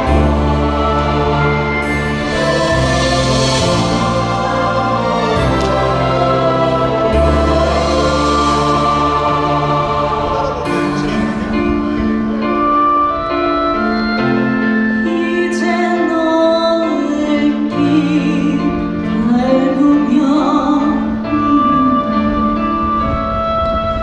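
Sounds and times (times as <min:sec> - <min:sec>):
karaoke backing track: 0:00.0 - 0:24.0
woman singing: 0:15.0 - 0:22.8.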